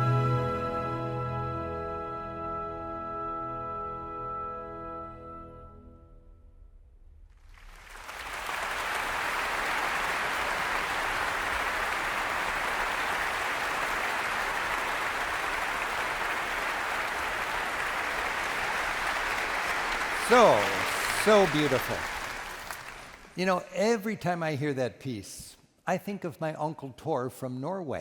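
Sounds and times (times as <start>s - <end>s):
audience applause: 7.4s - 23.4s.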